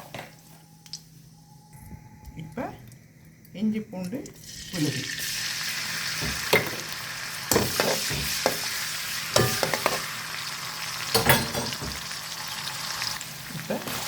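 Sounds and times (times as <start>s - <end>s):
paste sizzling in hot ghee: 4.4s - 14.0s
spoon scraping a pan: 9.4s - 10.1s.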